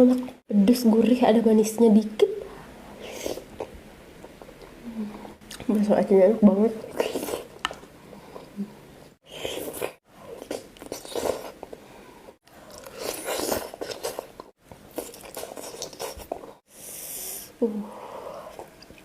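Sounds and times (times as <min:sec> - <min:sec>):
wet chewing: 0:12.5 - 0:16.6.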